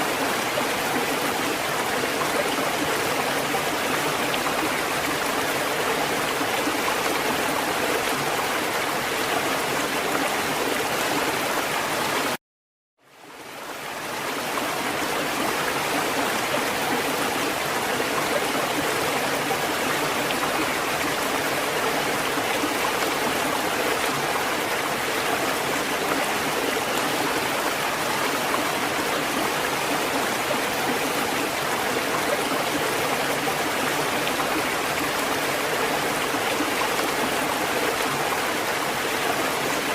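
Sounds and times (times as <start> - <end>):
rushing water: 0.0 - 12.4, 13.0 - 39.9.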